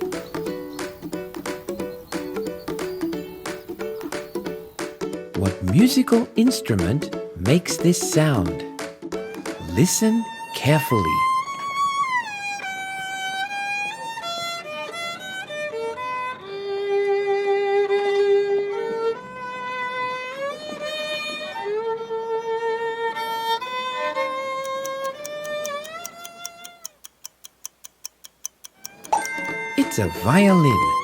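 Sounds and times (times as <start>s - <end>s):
regular ticking: 0.0s - 10.2s, 24.6s - 31.0s
solo violin slow melody: 11.2s - 25.6s.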